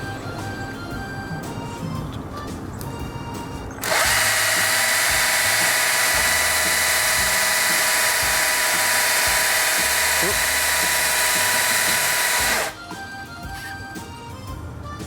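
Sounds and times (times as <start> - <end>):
chainsaw revving: 3.8 - 12.8.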